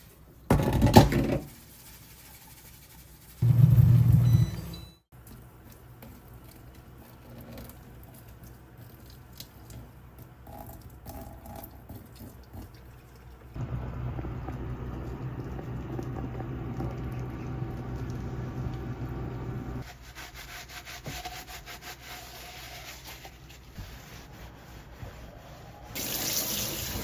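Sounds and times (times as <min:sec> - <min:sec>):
sink scrubbing: 0:00.0 - 0:04.6, 0:14.7 - 0:27.0.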